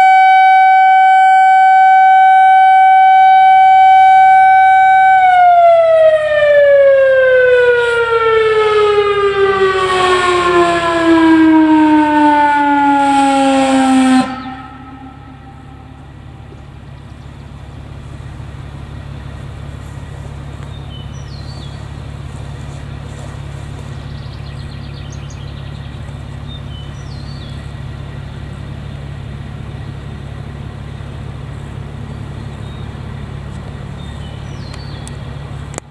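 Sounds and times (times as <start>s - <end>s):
vehicle engine idling: 0.0s - 35.9s
bird chirping: 14.3s - 18.2s, 20.6s - 29.1s, 32.0s - 35.6s.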